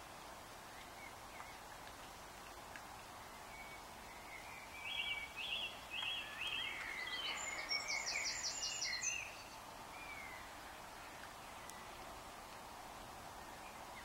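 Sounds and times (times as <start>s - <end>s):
background hiss: 0.0s - 14.0s
songbird singing: 0.0s - 14.0s.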